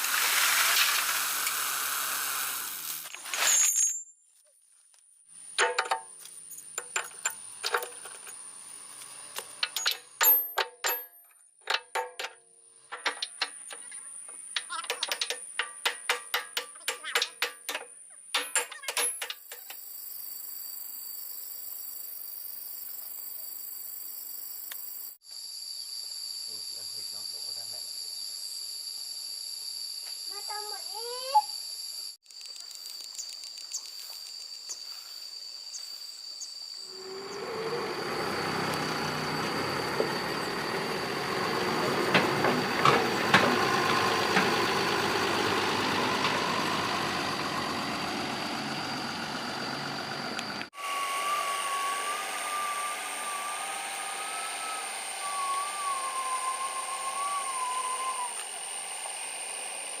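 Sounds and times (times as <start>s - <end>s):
sharp metal knocks: 5.6s - 8.3s, 9.6s - 19.7s
thin wavering whine: 36.7s - 60.0s
excavator running: 36.9s - 60.0s.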